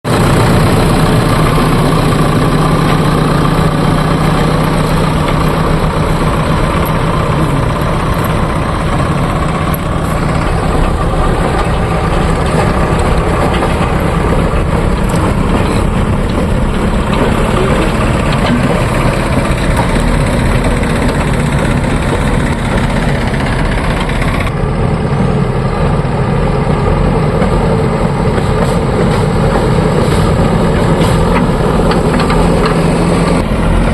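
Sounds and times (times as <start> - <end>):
diesel engine low rumble: 0.0 - 33.9.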